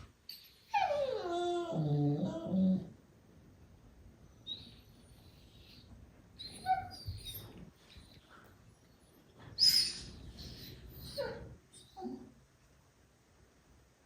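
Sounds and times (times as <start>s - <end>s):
puppies squeaking and squealing: 5.5s - 7.6s, 9.6s - 12.1s.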